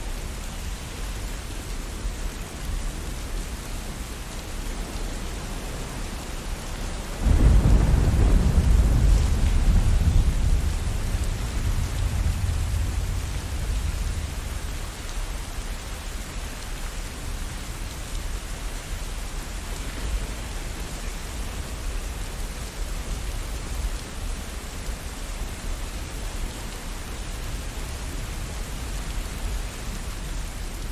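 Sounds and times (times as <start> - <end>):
steady rain: 0.0 - 30.9
thunder rumbling: 7.2 - 14.8.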